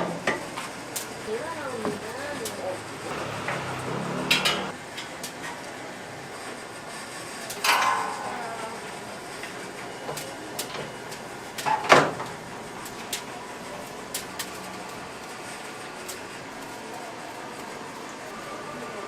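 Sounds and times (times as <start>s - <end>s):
steady background noise: 0.0s - 19.0s
knocks and scrapes: 3.1s - 4.7s.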